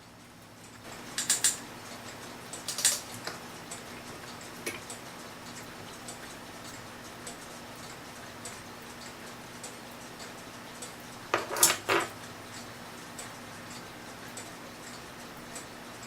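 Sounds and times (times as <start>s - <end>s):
metal parts clinking on workbench: 11.3s - 12.2s.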